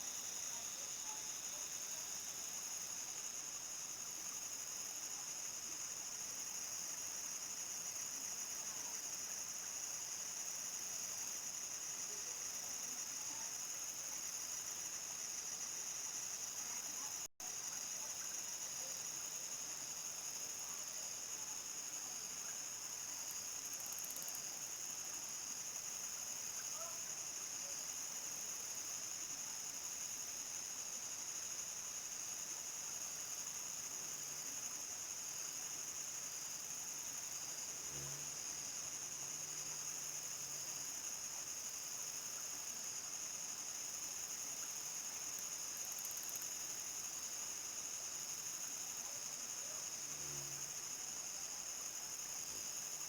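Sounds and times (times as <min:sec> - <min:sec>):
crickets trilling: 0:35.0 - 0:53.0.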